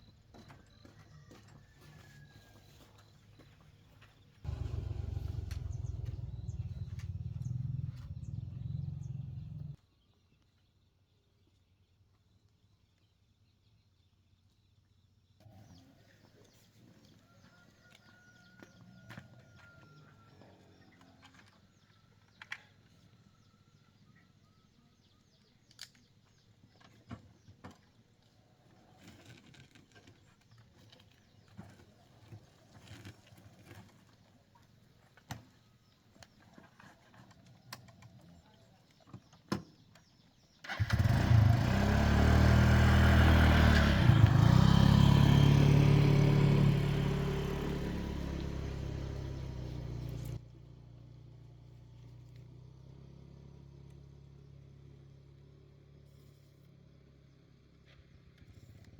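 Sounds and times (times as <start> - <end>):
birds chirping faintly: 0.0 - 33.3
small engine running: 4.4 - 9.8, 40.7 - 51.0.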